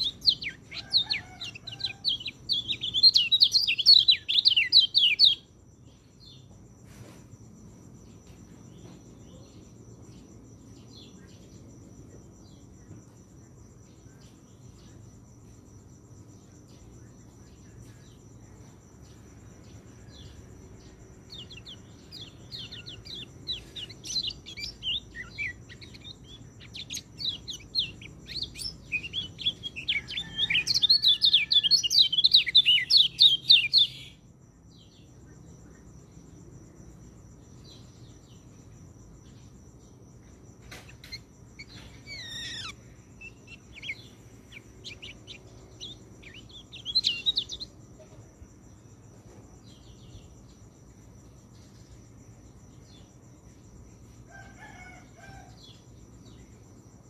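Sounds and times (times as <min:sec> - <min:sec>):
bird singing chirping phrases: 0:00.0 - 0:06.6, 0:16.4 - 0:35.9, 0:40.7 - 0:48.0
cricket trill: 0:00.0 - 0:57.0.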